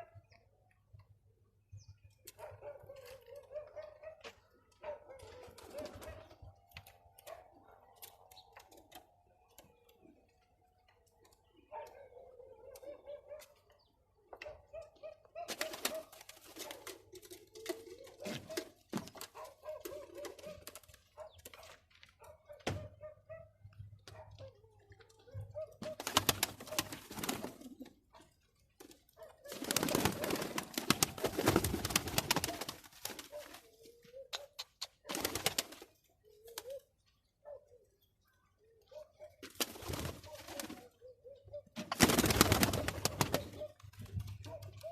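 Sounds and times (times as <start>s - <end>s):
pigeons cooing: 4.8s - 6.4s, 11.2s - 13.8s, 14.4s - 21.0s, 25.2s - 28.3s, 29.4s - 38.0s, 38.7s - 44.9s.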